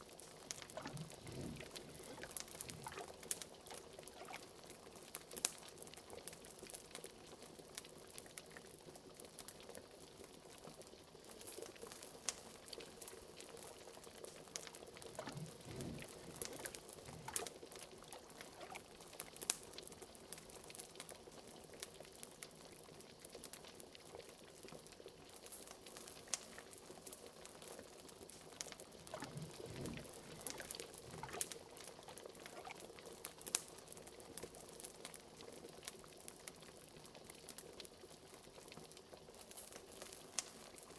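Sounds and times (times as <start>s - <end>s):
wood fire crackling: 0.0s - 4.3s, 11.3s - 20.8s, 25.2s - 32.8s, 39.3s - 40.9s
liquid bubbling in a pot: 0.0s - 40.9s.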